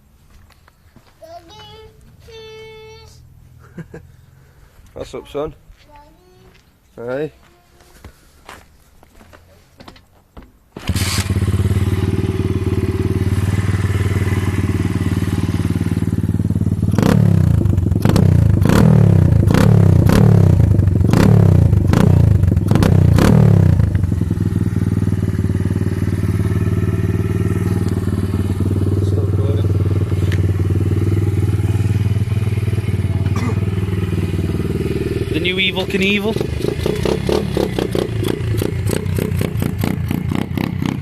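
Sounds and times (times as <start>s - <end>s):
motorbike engine idling and revving: 10.8s - 41.0s.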